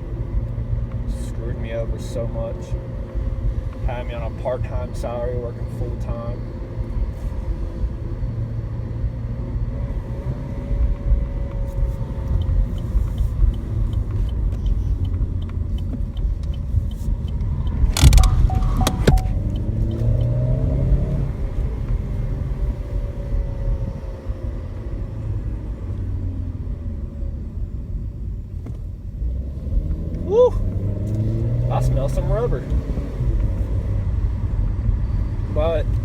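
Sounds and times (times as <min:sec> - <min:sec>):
car engine running while driving: 0:00.0 - 0:36.0
turn signal ticking: 0:00.0 - 0:36.0.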